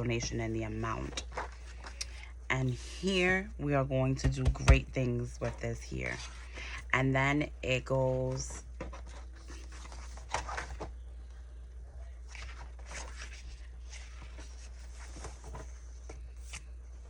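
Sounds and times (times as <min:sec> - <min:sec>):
paper pages rustling: 0:01.0 - 0:02.0, 0:08.8 - 0:10.9, 0:12.3 - 0:17.0.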